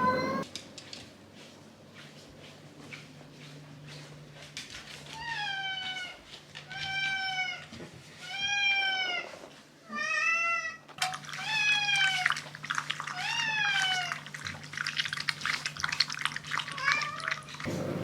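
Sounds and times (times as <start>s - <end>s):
cat meowing: 0.0s - 0.4s.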